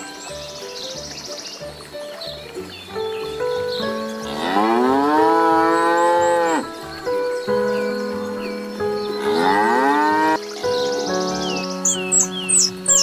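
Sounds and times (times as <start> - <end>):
background music: 0.0 - 13.0
water buffalo mooing: 4.2 - 6.7, 9.2 - 10.4.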